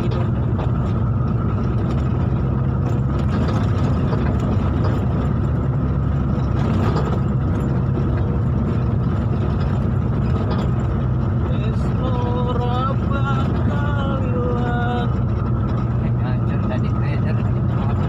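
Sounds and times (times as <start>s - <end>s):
road noise: 0.0s - 18.0s
vehicle engine drone: 0.0s - 18.0s.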